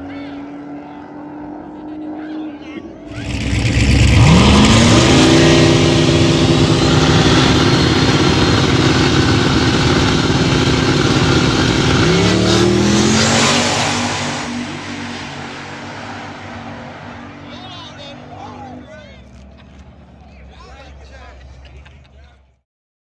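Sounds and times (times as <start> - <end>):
race car engine revving: 3.0 - 20.2.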